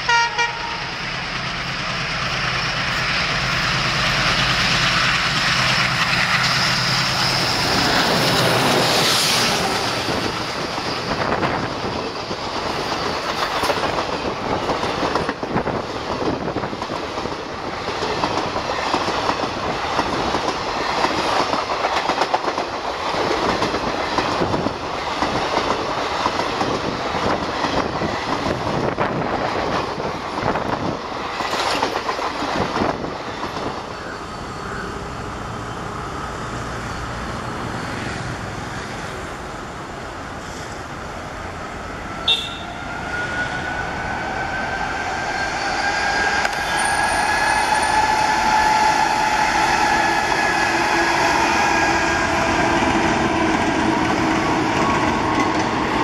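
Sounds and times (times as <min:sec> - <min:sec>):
diesel locomotive passing: 0:00.0 - 0:56.0
train wheels clattering over rail joints: 0:02.4 - 0:33.9.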